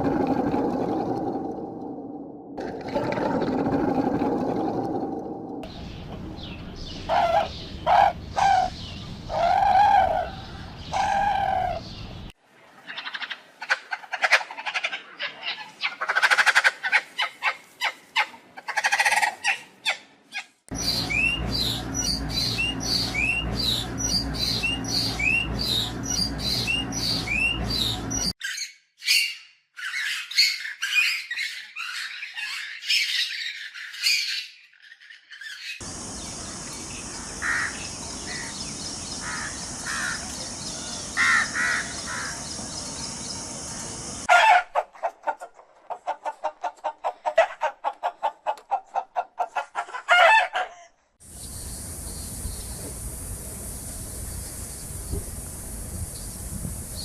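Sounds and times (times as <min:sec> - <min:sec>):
birds chirping and squawking: 0:05.7 - 0:12.3, 0:20.7 - 0:44.3
steady low hum: 0:20.7 - 0:28.3
rising bird chirps: 0:20.7 - 0:44.3
steady high hiss: 0:35.8 - 0:44.3, 0:51.2 - 0:57.0.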